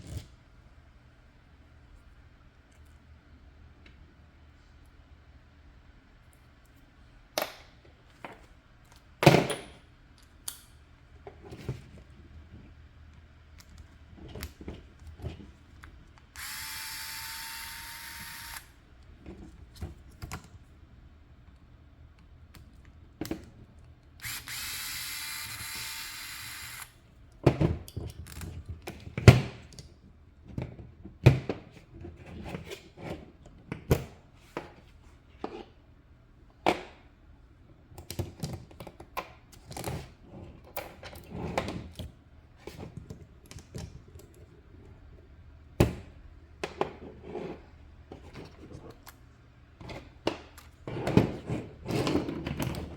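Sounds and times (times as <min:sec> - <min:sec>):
power screwdriver running: 0:16.4 - 0:18.7, 0:24.2 - 0:27.0
plastic parts and screws clicking: 0:24.2 - 0:26.9.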